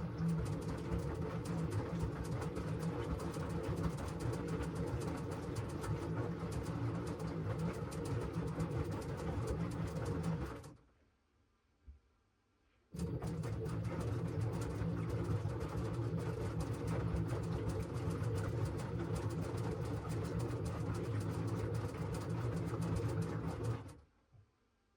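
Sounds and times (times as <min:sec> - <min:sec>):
washing machine motor hum: 0:00.0 - 0:10.8, 0:13.0 - 0:24.0.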